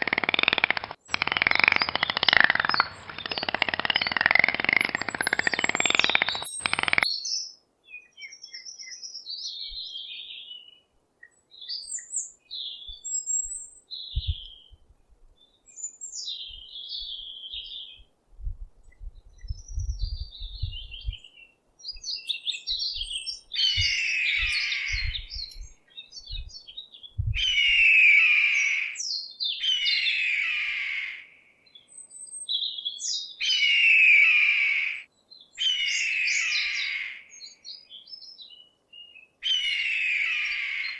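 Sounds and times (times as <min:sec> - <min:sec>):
bird song phrase: 0:00.0 - 0:10.8, 0:35.1 - 0:40.9
songbirds chirping: 0:00.0 - 0:10.9, 0:28.5 - 0:40.9.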